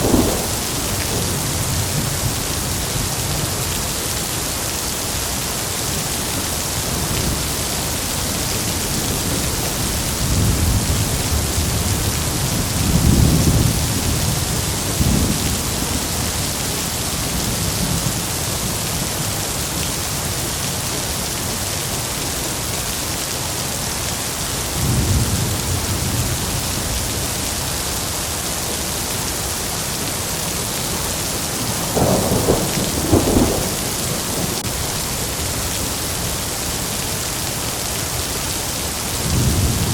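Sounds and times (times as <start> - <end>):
thunder rumbling: 0.0 - 3.5, 7.0 - 18.4, 30.4 - 35.6, 39.2 - 39.9
heavy rain falling: 0.0 - 39.9.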